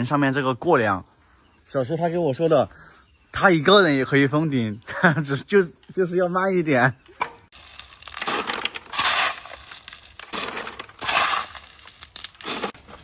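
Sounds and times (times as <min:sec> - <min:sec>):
tool scraping wet concrete: 0:07.8 - 0:13.0.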